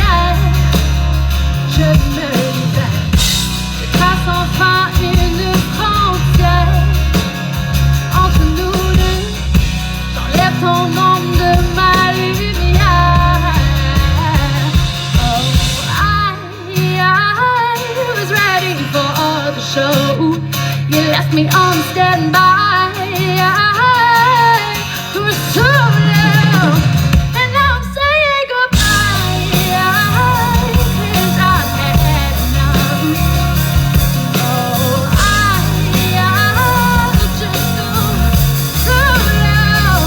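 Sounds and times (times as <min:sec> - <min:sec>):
bass: 0:00.0 - 0:40.0
drums: 0:00.0 - 0:40.0
guitar: 0:00.0 - 0:40.0
person singing: 0:00.0 - 0:40.0.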